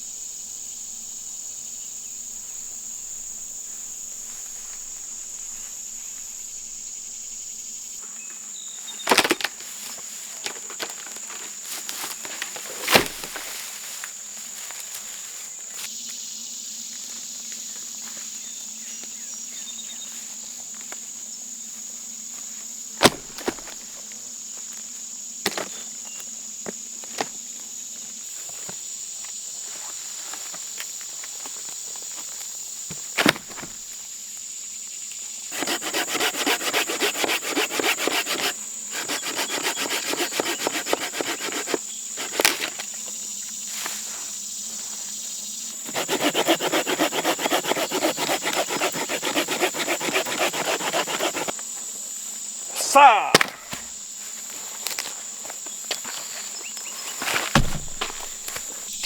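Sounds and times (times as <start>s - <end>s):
insects chirring: 0.0s - 59.0s
hand saw cutting wood: 9.1s - 9.6s, 12.6s - 13.5s, 23.0s - 23.8s, 25.5s - 25.7s, 33.2s - 33.8s, 35.5s - 42.9s, 45.8s - 51.6s, 57.5s - 59.0s
sharp knocks: 57.5s - 58.8s.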